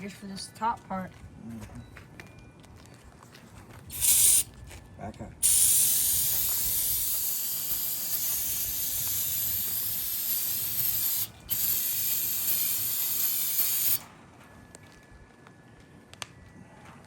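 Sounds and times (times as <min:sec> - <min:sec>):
aerosol can spraying hiss: 0:03.9 - 0:04.5, 0:05.4 - 0:14.0.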